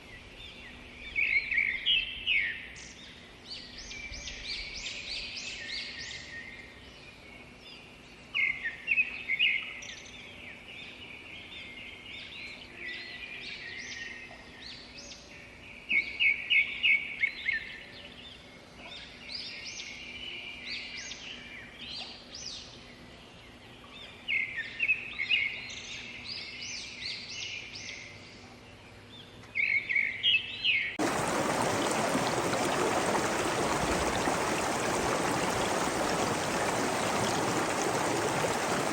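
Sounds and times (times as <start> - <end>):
birds chirping: 31.0 - 38.9
flowing water rushing: 31.0 - 38.9.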